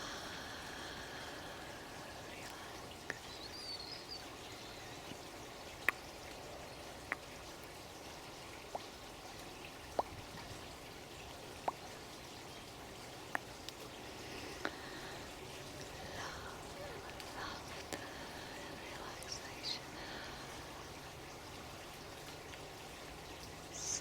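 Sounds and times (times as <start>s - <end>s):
trickle of running water: 0.0s - 24.0s
water drops plinking into water: 0.4s - 24.0s
high bird chirp: 23.7s - 24.0s.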